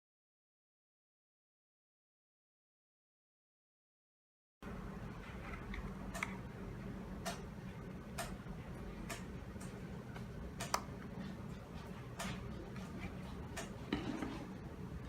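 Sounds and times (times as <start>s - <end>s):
low steady hum: 4.6s - 15.0s.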